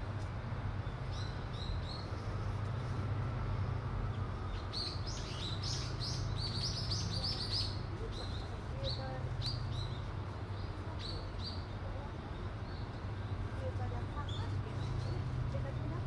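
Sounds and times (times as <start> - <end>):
small birds chirping: 0.8 - 3.0, 4.0 - 13.4.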